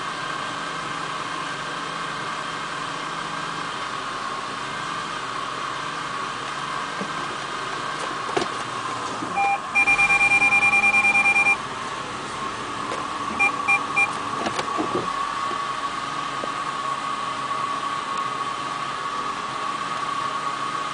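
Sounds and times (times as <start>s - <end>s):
electronic warning beeps: 9.4s - 11.6s, 13.4s - 14.2s.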